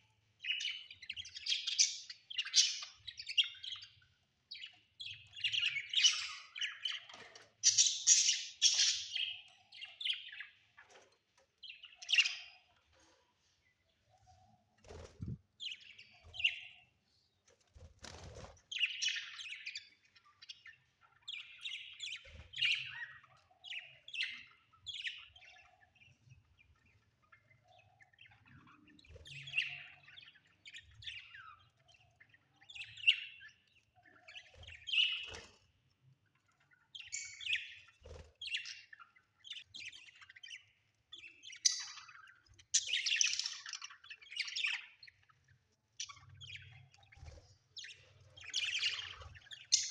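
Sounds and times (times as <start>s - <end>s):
budgerigars chirping: 0.4s - 4.0s, 4.6s - 10.7s, 27.2s - 35.5s, 36.6s - 45.4s, 46.0s - 49.9s.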